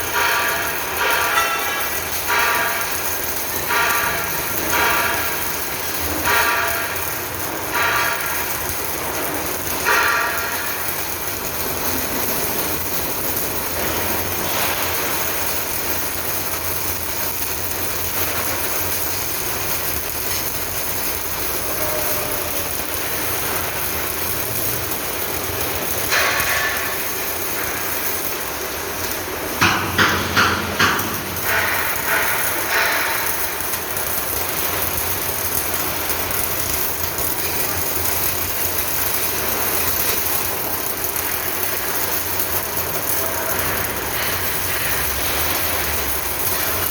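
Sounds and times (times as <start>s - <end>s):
workshop noise: 0.0s - 46.9s
metal clangs on steel: 0.2s - 11.7s, 26.0s - 34.8s.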